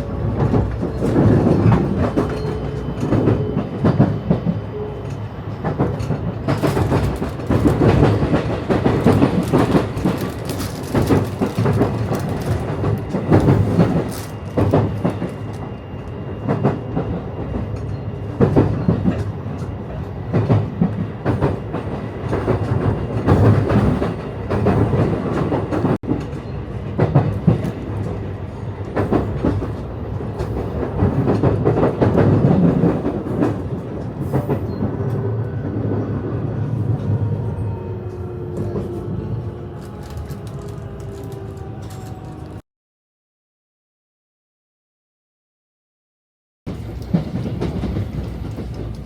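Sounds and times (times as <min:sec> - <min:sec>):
train wheels clattering on rails: 0:00.0 - 0:36.1, 0:46.7 - 0:49.0.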